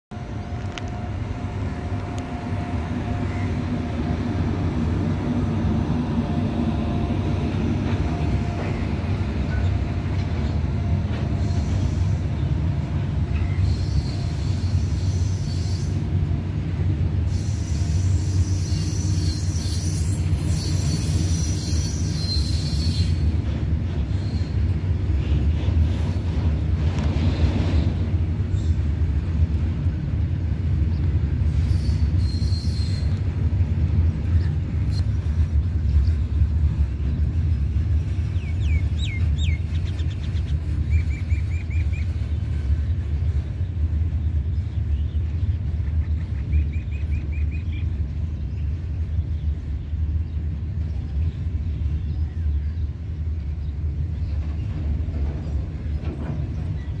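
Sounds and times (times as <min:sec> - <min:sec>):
train wheels rumbling on rail: 0:00.1 - 0:57.0
high wheel squeal: 0:13.4 - 0:16.1, 0:17.3 - 0:23.3, 0:31.6 - 0:33.2.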